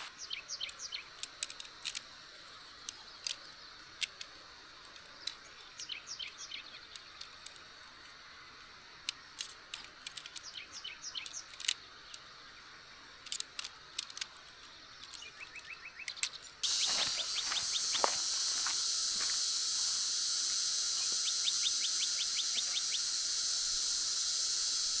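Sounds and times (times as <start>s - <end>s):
wild birds chirping: 0.0s - 25.0s
loud high-pitched hiss: 16.6s - 25.0s.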